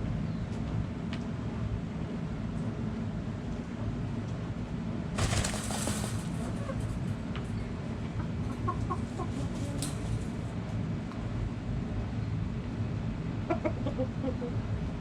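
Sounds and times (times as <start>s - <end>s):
rustling: 5.2s - 6.7s
chickens clucking: 5.2s - 7.1s, 8.2s - 10.2s, 13.4s - 14.6s.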